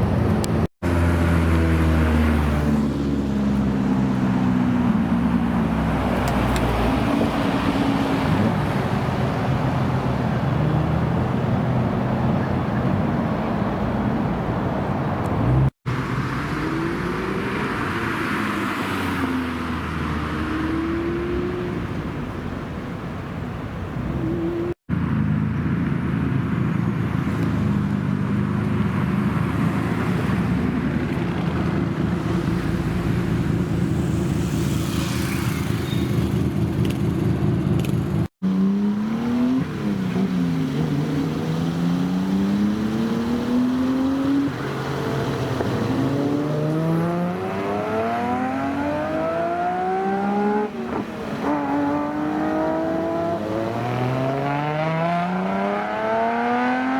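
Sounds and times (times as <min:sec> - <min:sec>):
car engines running: 0:00.0 - 0:56.9.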